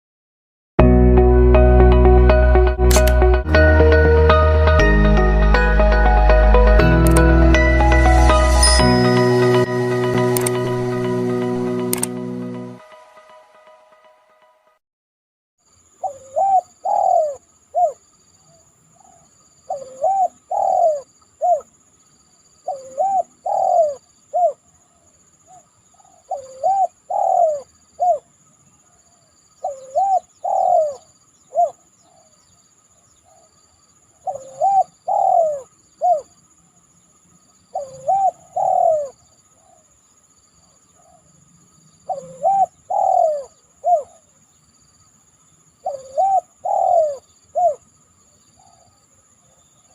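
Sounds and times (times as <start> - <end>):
dove cooing: 16.0 - 18.0, 19.0 - 21.7, 22.7 - 24.6, 26.0 - 28.3, 29.6 - 32.3, 34.2 - 36.3, 37.8 - 39.8, 42.1 - 44.3, 45.8 - 47.8.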